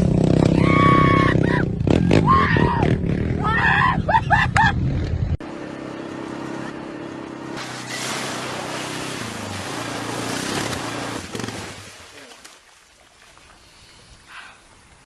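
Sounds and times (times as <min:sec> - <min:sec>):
person shouting: 0:00.5 - 0:04.2
vehicle engine running: 0:04.6 - 0:11.8.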